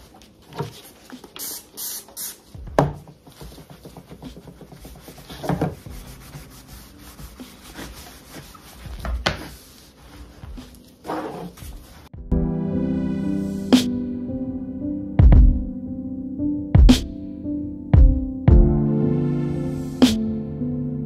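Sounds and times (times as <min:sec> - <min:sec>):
paper towel wiping a surface: 0:03.2 - 0:12.2.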